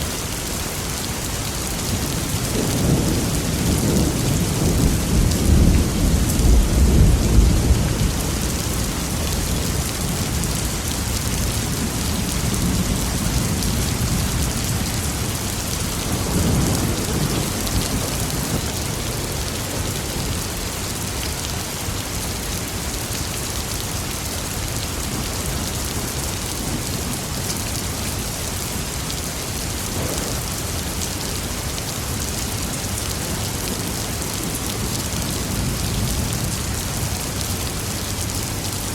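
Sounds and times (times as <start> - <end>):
steady rain hissing: 0.0 - 38.9
thunder rumbling: 1.7 - 20.4.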